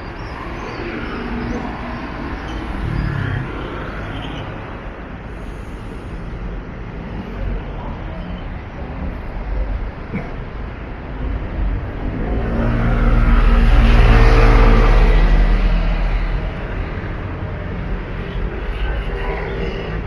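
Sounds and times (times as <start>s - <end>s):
vehicle passing by: 1.2s - 4.4s, 11.6s - 17.3s.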